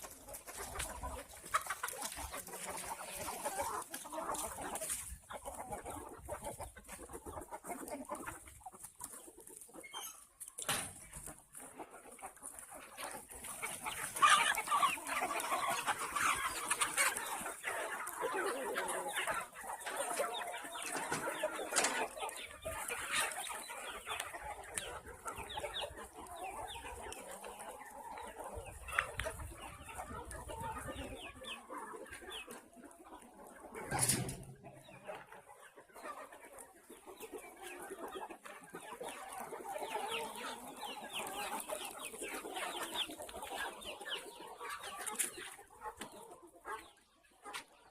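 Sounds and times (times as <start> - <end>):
chickens clucking: 0.0 - 47.9.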